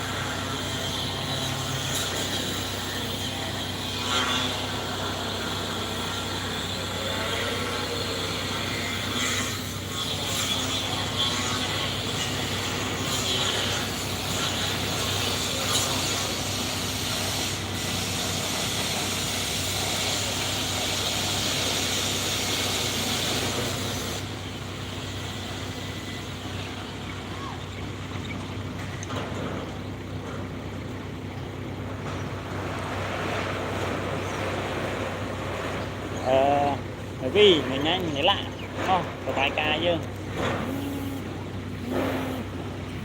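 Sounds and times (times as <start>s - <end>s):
hiss: 0.0s - 24.3s, 41.8s - 42.5s
excavator diesel engine: 0.0s - 43.0s.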